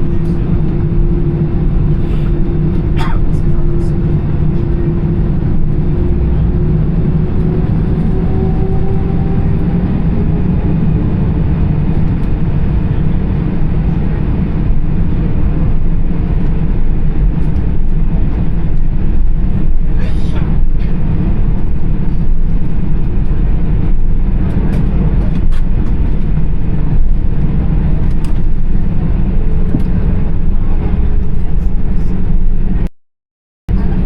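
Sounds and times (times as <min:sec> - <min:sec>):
faint jet engine tone: 0:00.0 - 0:16.1
aircraft taxiing low rumble: 0:00.0 - 0:32.9, 0:33.7 - 0:34.0.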